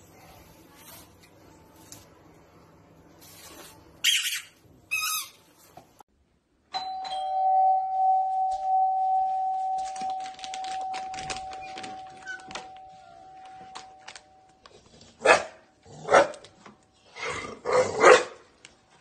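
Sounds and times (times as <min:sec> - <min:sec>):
electronic ringing tone: 0:06.9 - 0:14.4.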